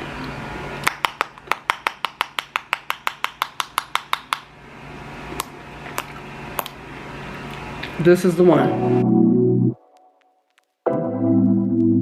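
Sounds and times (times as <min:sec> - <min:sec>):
low fan hum: 0:00.0 - 0:09.7
quick hand clapping: 0:00.8 - 0:04.5.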